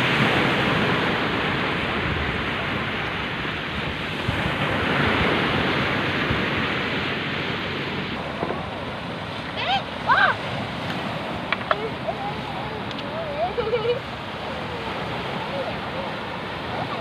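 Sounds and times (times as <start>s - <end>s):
rough sea surf breaking: 0.0s - 17.0s
wind buffeting microphone: 0.0s - 17.0s.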